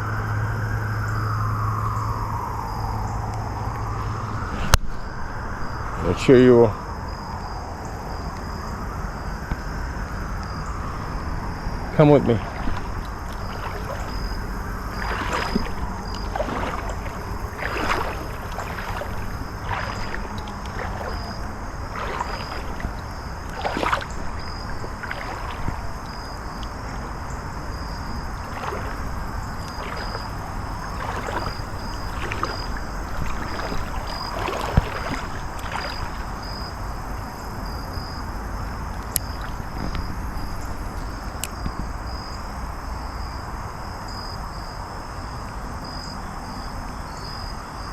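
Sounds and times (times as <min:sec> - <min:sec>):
insect chirring: 0:00.0 - 0:47.9
footsteps sloshing through water: 0:09.4 - 0:42.6.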